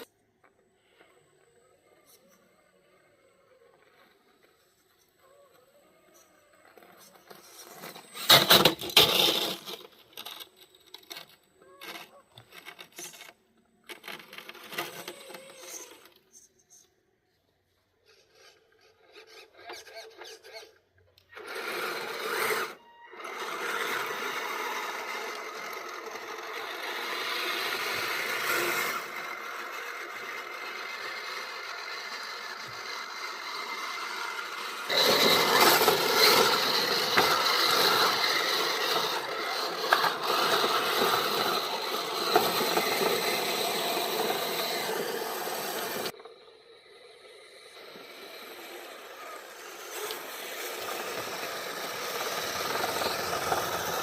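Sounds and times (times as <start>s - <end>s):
rasping scraping of running gear: 6.1s - 16.8s, 18.0s - 46.4s, 47.6s - 54.0s
electric motor and gear whine: 21.3s - 54.0s.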